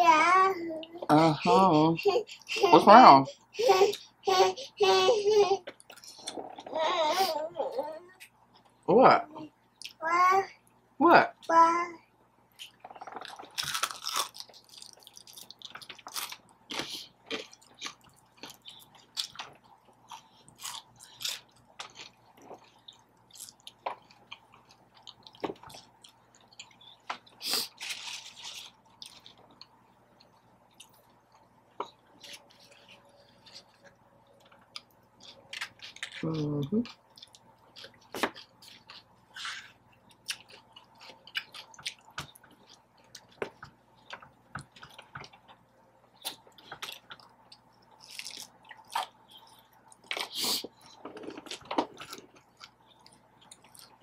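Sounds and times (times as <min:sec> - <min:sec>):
chewing and crunching food: 0:05.6 - 0:06.7, 0:12.5 - 0:54.0.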